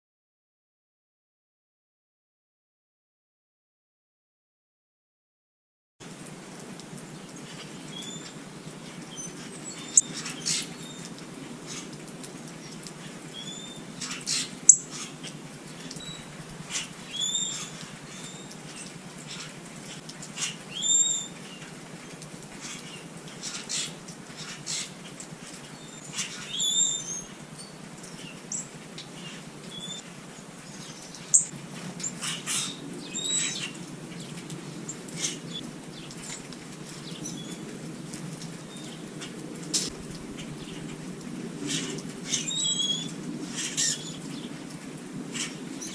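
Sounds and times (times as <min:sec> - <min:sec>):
small birds chirping: 0:06.9 - 0:37.6, 0:38.6 - 0:44.6
wings fluttering: 0:07.3 - 0:27.0.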